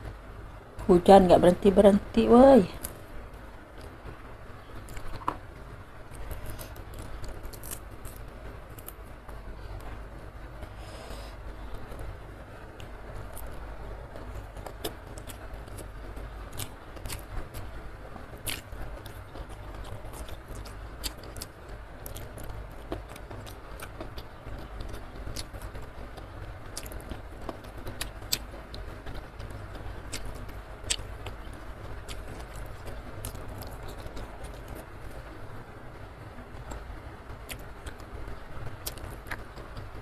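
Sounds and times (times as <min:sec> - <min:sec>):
sharp eating clicks: 0:06.1 - 0:09.0, 0:14.3 - 0:35.3, 0:36.6 - 0:40.0
chewing with wet mouth smacks: 0:18.4 - 0:28.8, 0:29.4 - 0:34.9, 0:37.5 - 0:38.1, 0:38.8 - 0:39.9.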